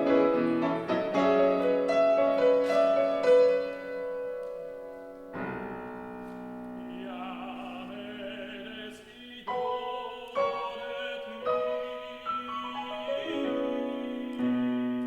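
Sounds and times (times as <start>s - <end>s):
grand piano chords: 0.0s - 15.0s
operatic tenor singing: 6.7s - 15.0s.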